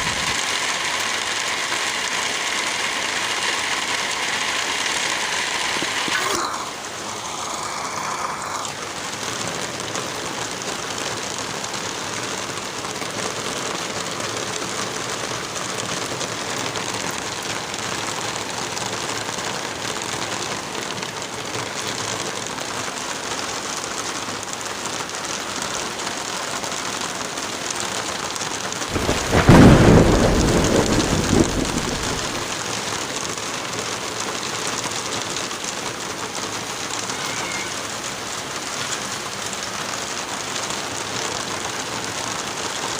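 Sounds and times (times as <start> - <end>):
thunder rumbling: 0.0 - 0.4, 28.9 - 32.7
steady rain: 0.0 - 42.9.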